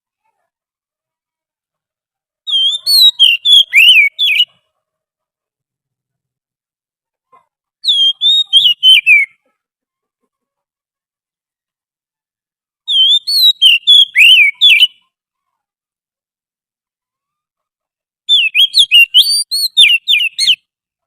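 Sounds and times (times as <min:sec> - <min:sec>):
bird song of whistled notes: 0:02.5 - 0:04.6, 0:07.8 - 0:09.4, 0:12.9 - 0:15.0, 0:18.3 - 0:20.7.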